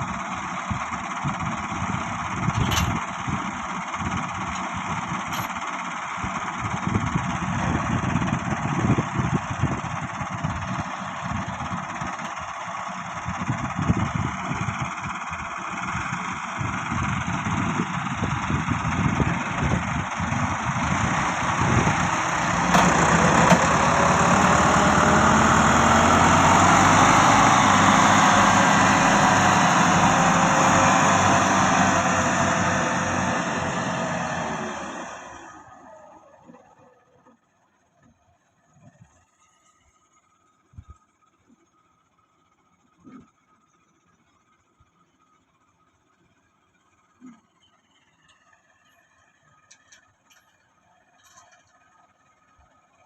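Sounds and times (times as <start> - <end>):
tractor diesel engine revving: 0.0 - 36.6.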